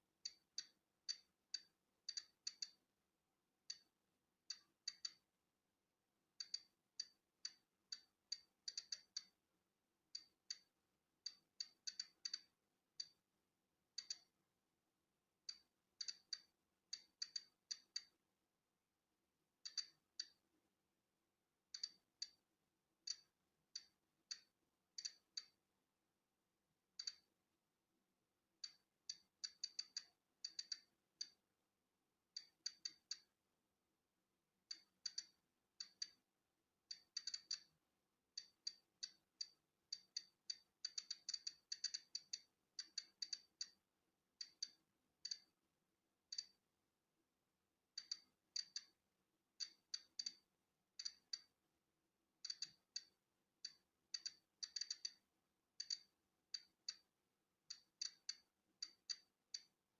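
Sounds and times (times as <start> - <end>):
geiger counter clicking: 0.2 - 2.9, 3.7 - 5.3, 6.4 - 9.4, 10.2 - 13.2, 14.0 - 14.4, 15.4 - 18.2, 19.6 - 20.5, 21.7 - 22.4, 23.0 - 25.6, 27.0 - 27.3, 28.6 - 31.4, 32.4 - 33.4, 34.7 - 36.2, 36.9 - 37.8, 38.4 - 43.8, 44.4 - 45.6, 46.3 - 46.6, 48.0 - 49.0, 49.6 - 51.5, 52.4 - 55.2, 55.8 - 57.1, 57.7 - 59.7.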